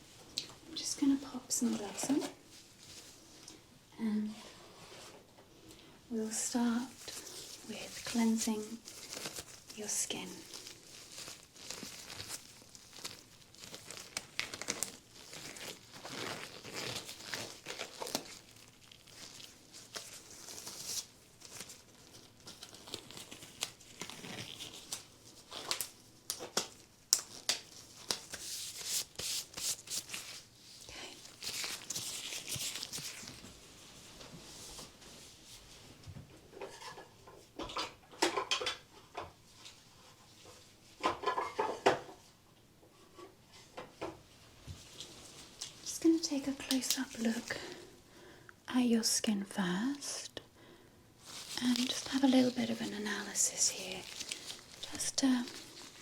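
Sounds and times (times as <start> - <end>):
rubber gloves crinkling: 6.2 - 35.6, 44.6 - 48.3, 51.2 - 56.0.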